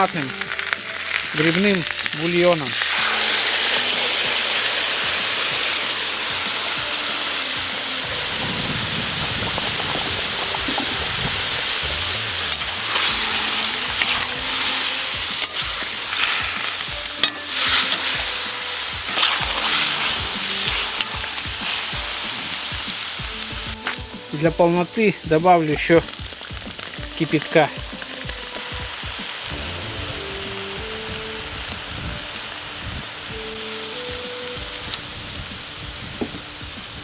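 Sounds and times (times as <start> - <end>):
broth pouring: 0.0 - 28.6
meat sizzling in butter: 0.0 - 37.0.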